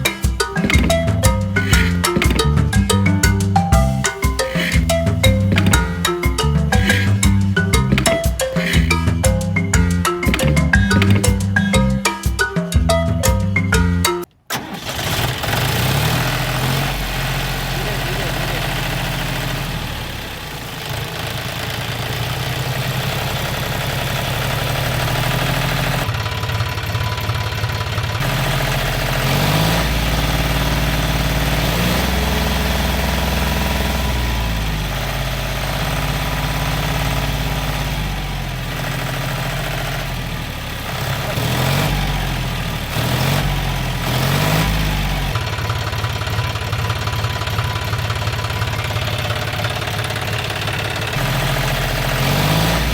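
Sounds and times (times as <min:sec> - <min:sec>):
small tractor engine running: 0:14.5 - 0:52.9.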